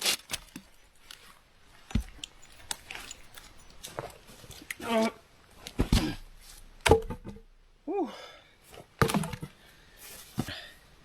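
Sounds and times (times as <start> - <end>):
wooden logs knocking together: 0.0 - 5.0, 5.6 - 7.6, 9.0 - 9.6.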